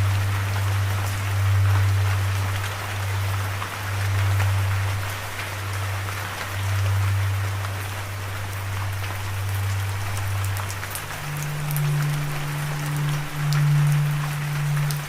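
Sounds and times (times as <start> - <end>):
steady rain falling: 0.0 - 15.0
low held drone note: 6.6 - 15.0.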